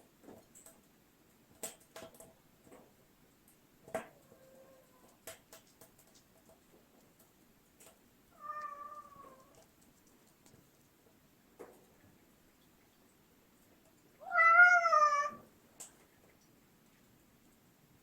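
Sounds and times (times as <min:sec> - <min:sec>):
small clicks and taps: 0:00.2 - 0:04.4, 0:05.0 - 0:08.0, 0:08.6 - 0:13.0, 0:15.8 - 0:17.6
cat meowing: 0:04.2 - 0:05.1, 0:08.4 - 0:09.6, 0:14.2 - 0:15.5.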